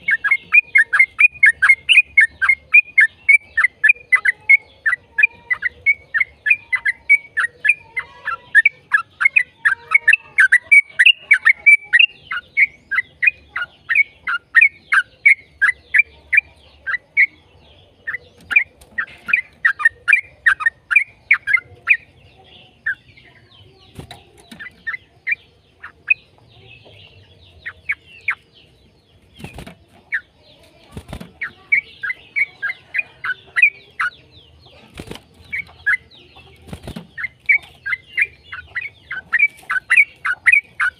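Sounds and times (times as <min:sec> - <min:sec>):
bird singing chattering notes: 0:00.0 - 0:40.9.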